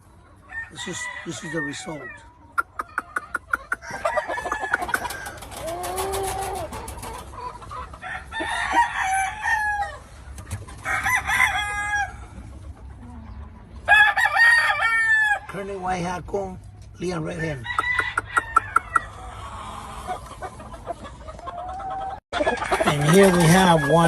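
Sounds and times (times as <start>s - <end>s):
roosters crowing: 0.4s - 2.4s, 3.7s - 12.6s, 13.8s - 15.6s, 17.3s - 20.3s, 21.8s - 24.0s.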